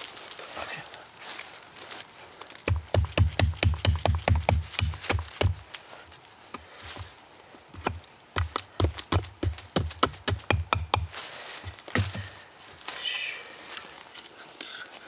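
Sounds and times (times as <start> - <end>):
tool knocking on wood: 2.7 - 5.6, 7.8 - 11.2, 11.9 - 12.4.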